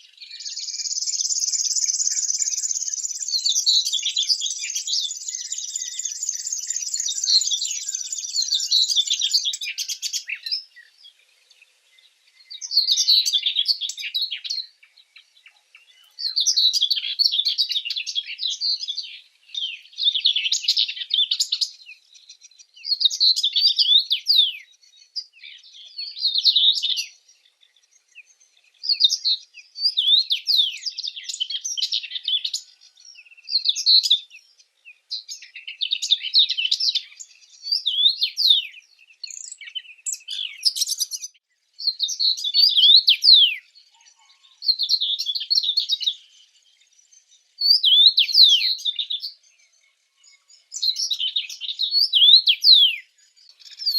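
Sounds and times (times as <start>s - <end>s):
small birds chirping and trilling: 0.0s - 53.9s.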